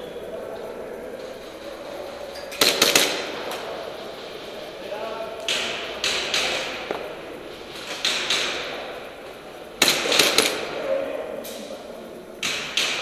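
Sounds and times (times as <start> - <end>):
airsoft gun shots: 2.6 - 3.5, 5.4 - 7.1, 7.8 - 9.0, 9.8 - 10.8, 12.4 - 13.0.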